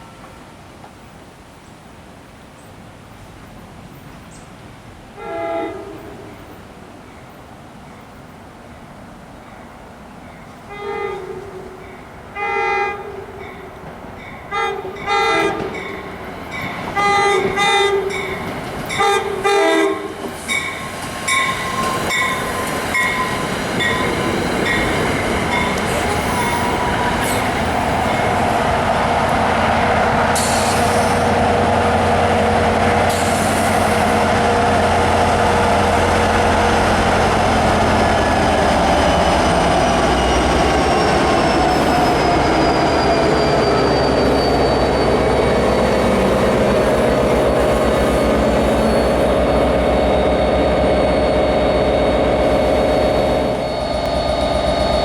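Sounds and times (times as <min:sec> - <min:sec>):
train passing rumble: 0:03.0 - 0:55.0
locomotive air horn blasts: 0:05.2 - 0:06.3, 0:10.7 - 0:11.6, 0:14.5 - 0:15.8, 0:19.0 - 0:20.2
faint wheel squeal: 0:39.0 - 0:46.0, 0:52.7 - 0:55.0.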